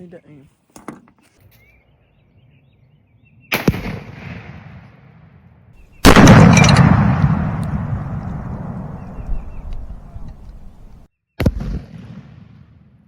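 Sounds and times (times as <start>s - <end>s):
rifle shot: 3.5s - 5.1s, 5.9s - 12.6s
explosion boom: 6.0s - 11.0s.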